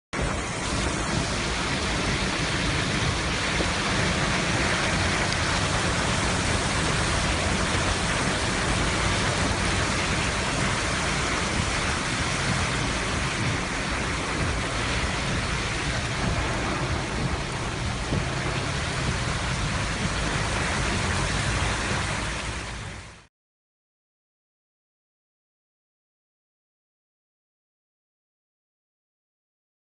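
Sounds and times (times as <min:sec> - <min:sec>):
heavy rain: 0:00.2 - 0:23.3.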